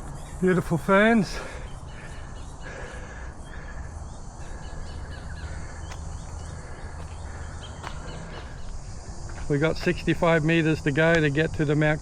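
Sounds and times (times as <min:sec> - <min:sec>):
steady low rumble: 0:01.8 - 0:11.3
high bird chirps: 0:03.4 - 0:08.9.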